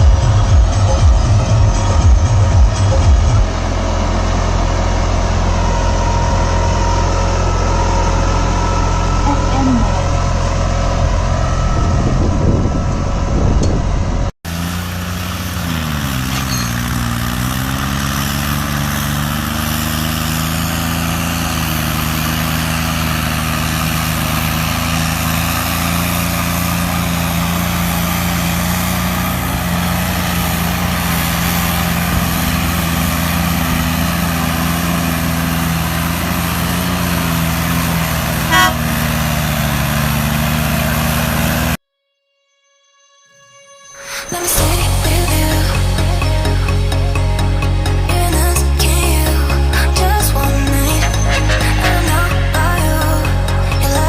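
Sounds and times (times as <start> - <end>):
tractor diesel engine under load: 0.0 - 41.8, 44.3 - 54.0
brief sharp sound: 50.9 - 53.6.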